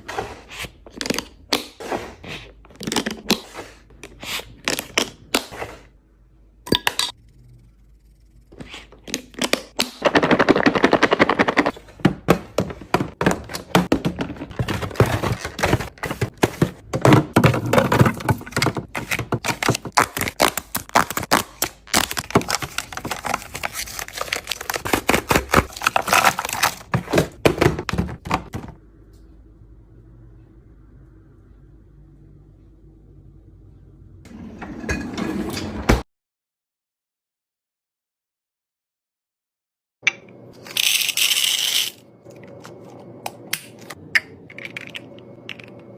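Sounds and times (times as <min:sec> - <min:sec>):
plastic packaging clattering: 0:12.5 - 0:28.7.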